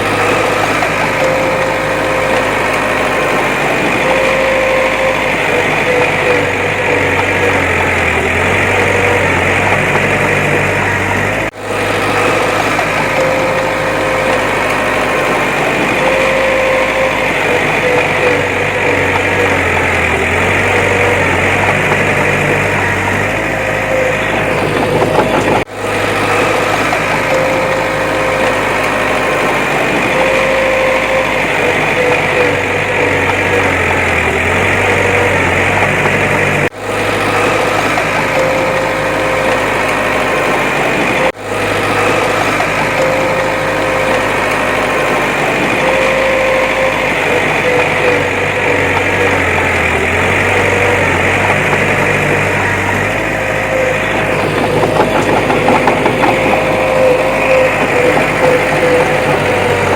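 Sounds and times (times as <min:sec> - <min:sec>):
diesel engine drone: 0:00.0 - 0:59.9
high machine whine: 0:00.0 - 0:59.9.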